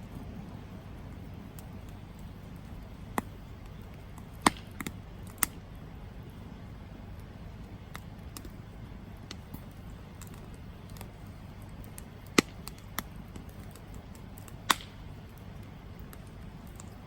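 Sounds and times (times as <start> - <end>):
campfire crackling: 0.0 - 17.0
campfire flames rumbling: 0.0 - 17.0
loud sharp pops from fire: 1.2 - 5.6, 7.1 - 17.0.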